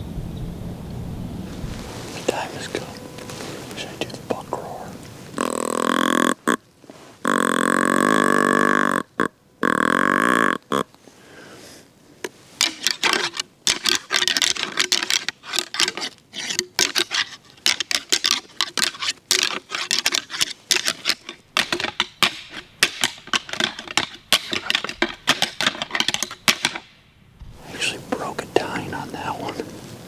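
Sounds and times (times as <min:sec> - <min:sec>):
antlers rattling together: 0:12.2 - 0:26.9.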